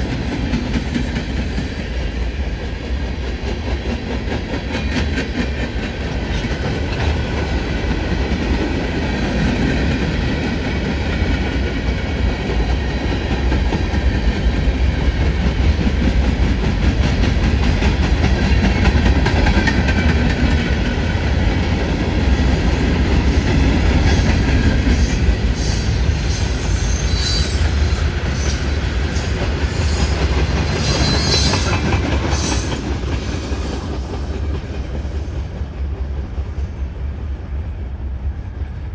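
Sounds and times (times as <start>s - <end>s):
freight train rumbling past: 0.0s - 38.9s
high-pitched wheel squeal: 25.6s - 27.8s, 29.8s - 31.8s.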